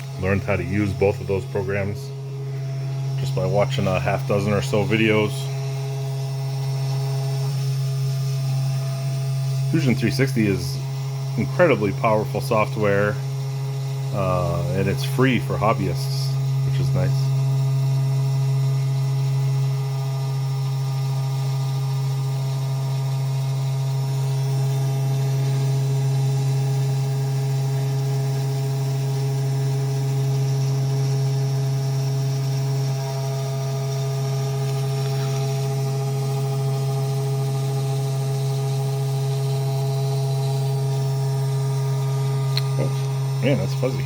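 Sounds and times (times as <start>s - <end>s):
axis motors whining: 0.0s - 15.0s, 27.4s - 44.0s
spindle motor hum: 0.0s - 44.0s.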